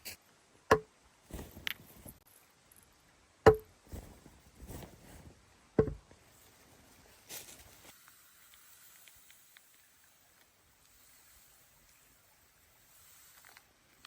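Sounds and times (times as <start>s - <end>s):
rustling and handling: 1.3s - 2.9s, 3.8s - 5.4s, 6.1s - 8.0s.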